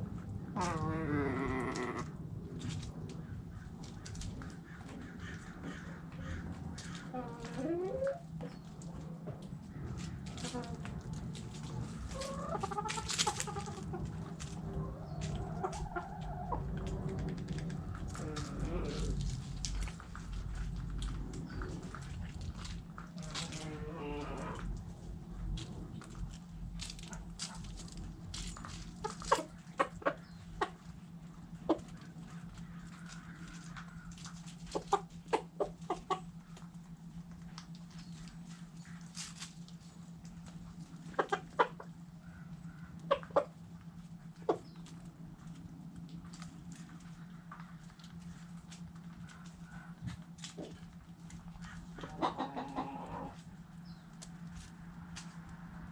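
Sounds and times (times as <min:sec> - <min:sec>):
chickens clucking: 0:00.0 - 0:55.9
steady low hum: 0:00.0 - 0:55.9
chicken rising call: 0:12.1 - 0:20.3, 0:51.9 - 0:53.4.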